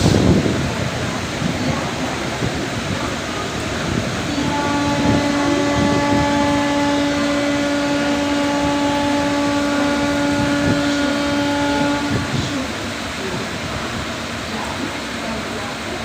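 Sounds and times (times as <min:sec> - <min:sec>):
train arriving: 0:00.0 - 0:16.0
train horn blast: 0:02.2 - 0:14.1.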